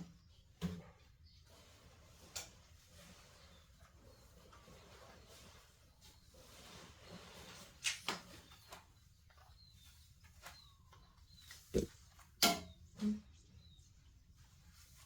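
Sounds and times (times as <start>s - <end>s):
faint bird chirps: 9.6s - 11.9s.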